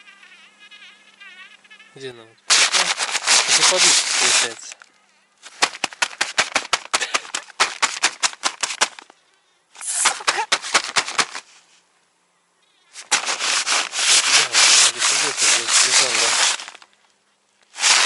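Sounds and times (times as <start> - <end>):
tent fabric crinkling and rustling: 2.5 - 9.1, 9.8 - 11.7, 13.0 - 18.0.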